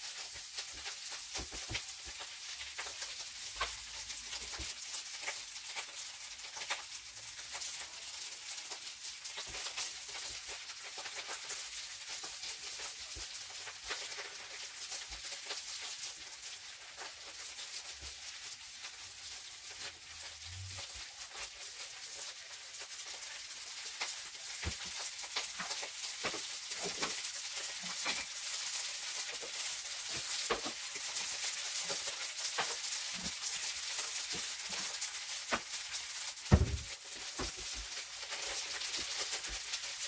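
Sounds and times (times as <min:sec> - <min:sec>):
food sizzling in a pan: 0:00.0 - 0:40.0
spatula clicks and scrapes: 0:19.6 - 0:36.3.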